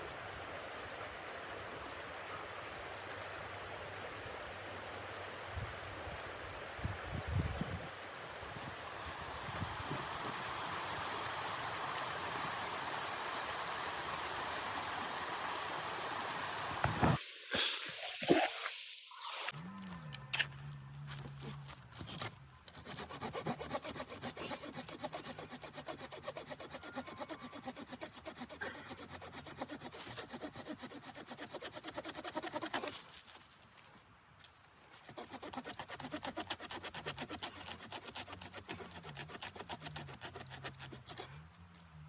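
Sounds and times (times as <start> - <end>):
hand saw cutting wood: 22.0 - 33.2, 34.9 - 41.8.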